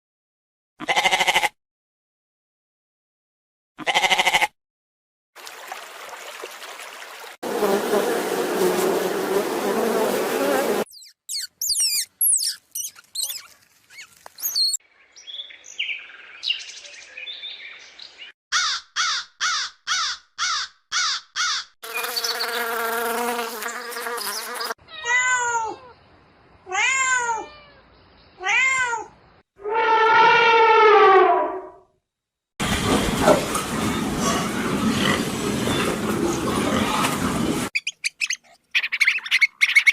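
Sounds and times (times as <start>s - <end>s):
quick series of short calls: 10.9s - 14.8s
short animal chirps: 10.9s - 14.8s, 37.8s - 39.9s
drawn-out animal calls: 11.4s - 14.8s.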